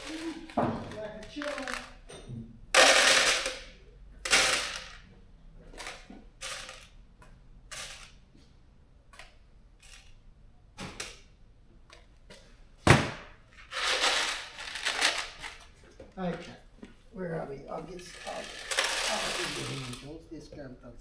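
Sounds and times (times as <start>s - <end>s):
hard objects clattering: 0.0s - 7.0s, 13.6s - 16.0s, 18.0s - 20.1s.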